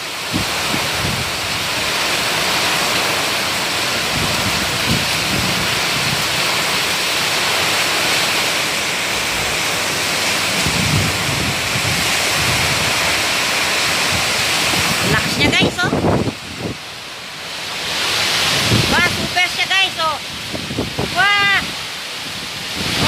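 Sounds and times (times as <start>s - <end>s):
heavy rain pouring: 0.0s - 23.0s
low rumbles: 8.9s - 17.2s.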